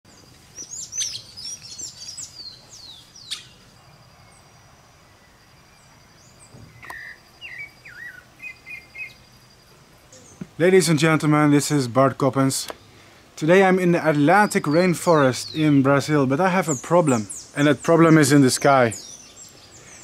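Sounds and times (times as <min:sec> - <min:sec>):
birds chirping and whistling: 0:00.1 - 0:09.3, 0:14.0 - 0:20.0.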